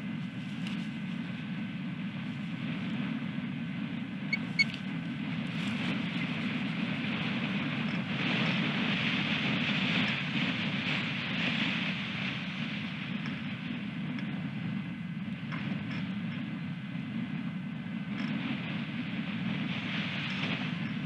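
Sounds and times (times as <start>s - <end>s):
wind buffeting microphone: 0.0s - 21.0s
short high chirps: 4.3s - 4.8s.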